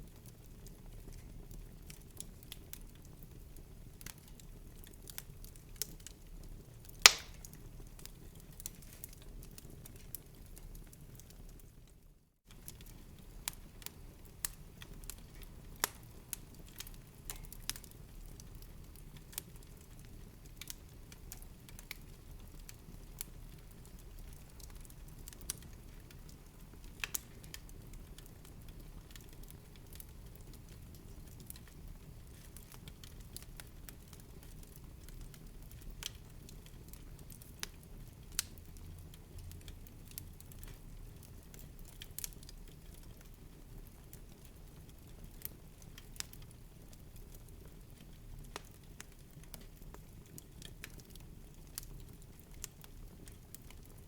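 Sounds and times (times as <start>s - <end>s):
low rumble of burning: 0.0s - 54.0s
wood fire crackling: 0.0s - 54.0s
sharp pops: 7.0s - 7.4s.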